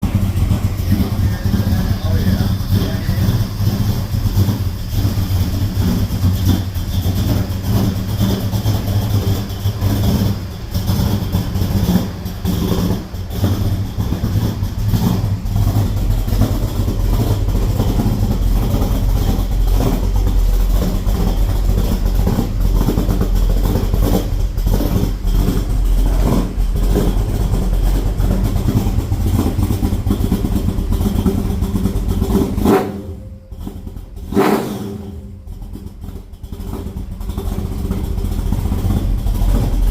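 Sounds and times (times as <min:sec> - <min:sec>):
loud engine exhaust: 0:00.0 - 0:39.9.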